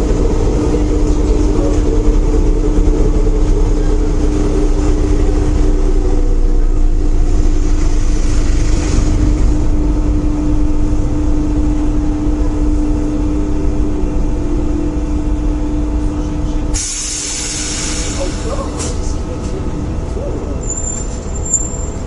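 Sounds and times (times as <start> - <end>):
subway train rumbling: 0.0 - 22.0
train motor hum: 0.0 - 22.0
hiss of released air: 16.8 - 19.0.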